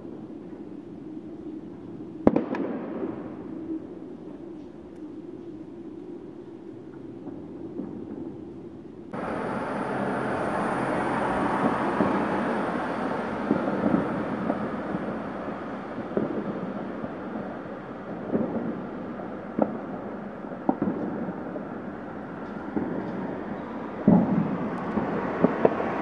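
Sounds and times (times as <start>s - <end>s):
rumble of fireworks bangs: 2.2s - 3.6s, 9.2s - 26.0s
sharp firecracker cracks: 2.3s - 3.4s.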